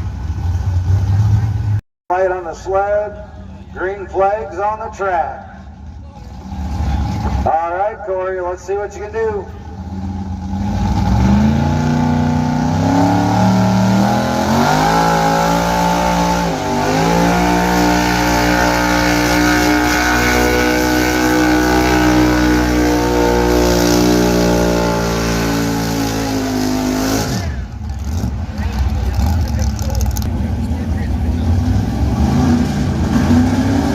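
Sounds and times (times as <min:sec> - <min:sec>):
truck engine revving: 0:05.4 - 0:07.6, 0:09.0 - 0:33.9.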